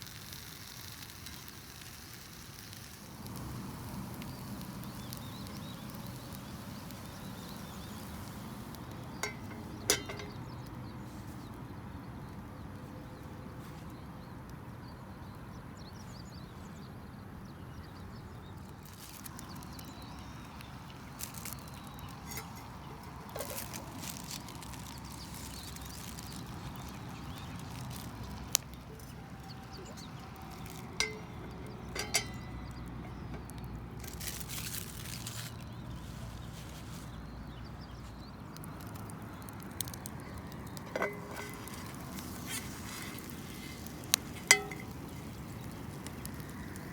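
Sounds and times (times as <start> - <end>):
cooking utensils clinking: 9.2 - 10.6, 22.1 - 23.8, 29.5 - 33.6, 40.8 - 46.4.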